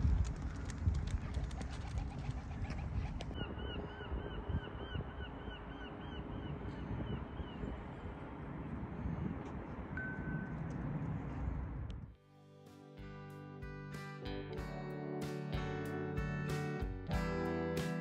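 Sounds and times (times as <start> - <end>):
low outdoor rumble: 0.0 - 12.1.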